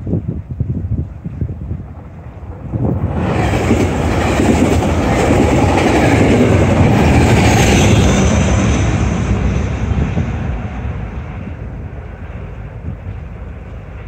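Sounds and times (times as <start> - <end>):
diesel locomotive running: 0.0 - 14.0
train wheels clattering on rails: 2.9 - 10.9.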